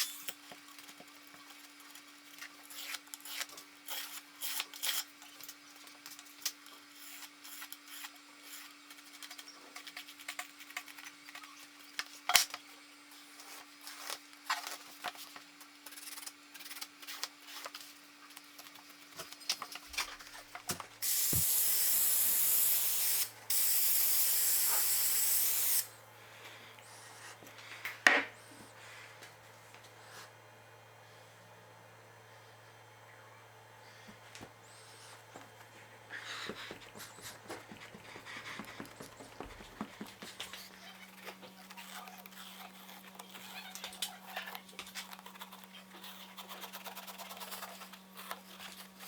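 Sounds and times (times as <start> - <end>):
loud hissing spray: 21.0 - 25.9.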